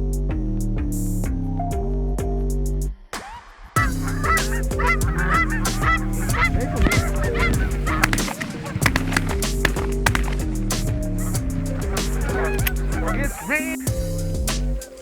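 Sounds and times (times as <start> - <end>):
background music: 0.0 - 15.0
geese honking: 3.8 - 10.5, 11.1 - 14.0.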